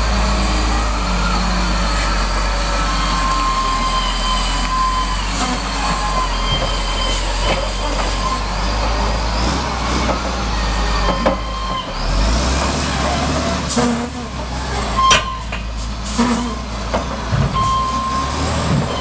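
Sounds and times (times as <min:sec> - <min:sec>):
crane whine: 0:00.0 - 0:13.6
heavy diesel engine running: 0:00.0 - 0:19.0.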